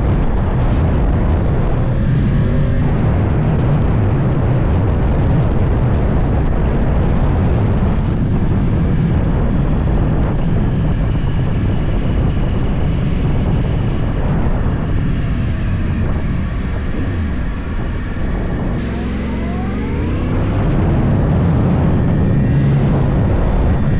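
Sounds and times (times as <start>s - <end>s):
wind on microphone: 0.0s - 23.9s
motorcycle engine running: 15.2s - 23.9s.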